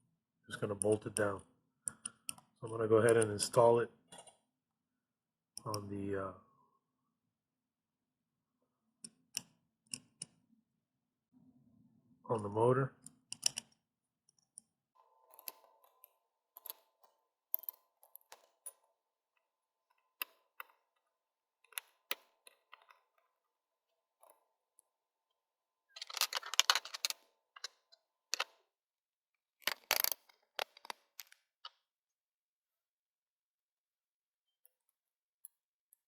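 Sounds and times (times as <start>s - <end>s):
parts rattling clatter: 26.0s - 28.5s
plastic and metal parts clicking: 26.0s - 28.6s, 29.6s - 31.8s.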